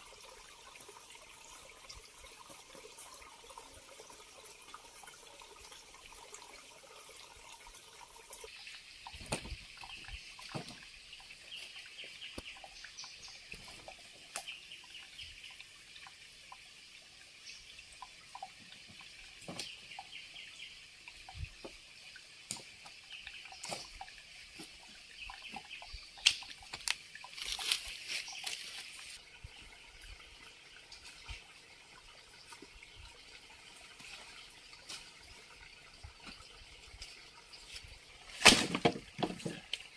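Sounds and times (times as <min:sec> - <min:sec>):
faint trickling water: 0:00.0 - 0:38.4, 0:39.0 - 0:39.9.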